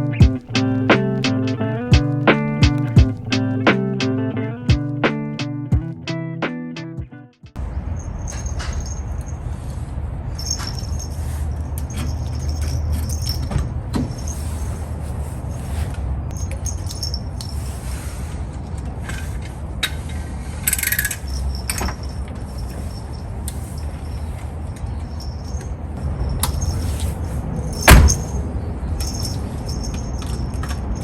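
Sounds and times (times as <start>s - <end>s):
engine and road rumble: 0.0s - 6.2s, 7.6s - 31.0s
interior rattles and squeaks: 7.8s - 9.5s, 10.3s - 14.8s, 20.3s - 31.0s.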